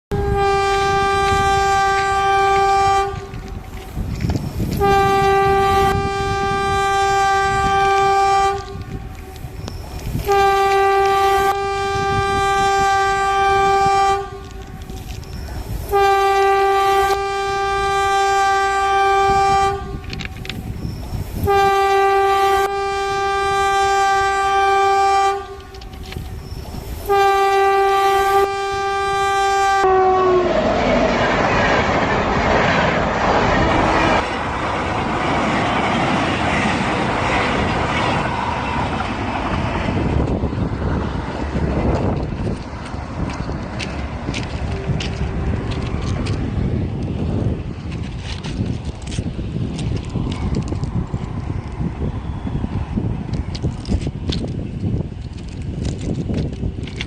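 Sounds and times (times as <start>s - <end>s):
train horn blasts: 0.1s - 26.3s, 27.0s - 30.8s, 32.7s - 34.4s, 43.2s - 47.2s
moving train rumble: 0.1s - 57.0s.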